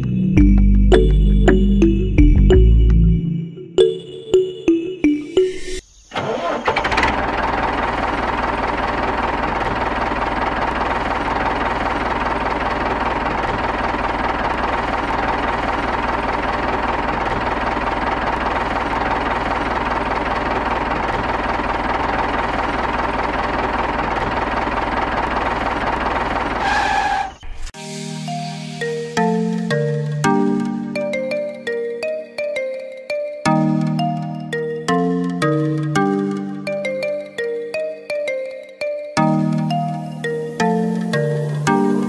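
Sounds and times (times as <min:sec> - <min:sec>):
model tractor motor knocking: 0:06.8 - 0:26.6.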